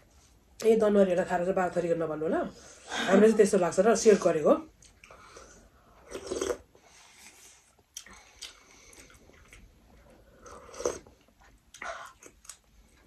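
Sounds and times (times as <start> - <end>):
people chewing with wet clicks: 4.7 - 13.0.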